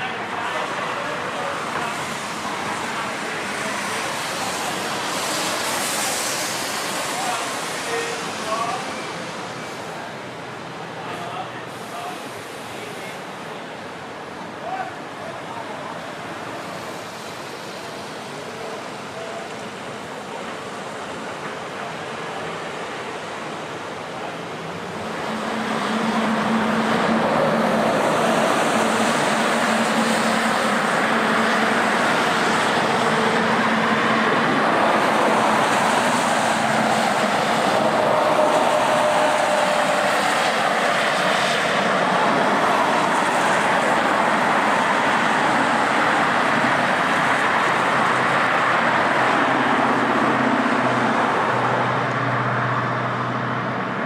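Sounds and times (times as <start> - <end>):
jet engines roaring: 23.6 - 54.0.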